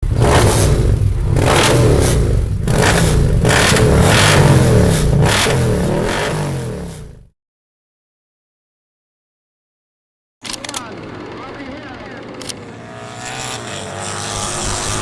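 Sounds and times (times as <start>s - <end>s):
motorcycle engine revving: 0.0s - 7.3s, 10.8s - 15.0s.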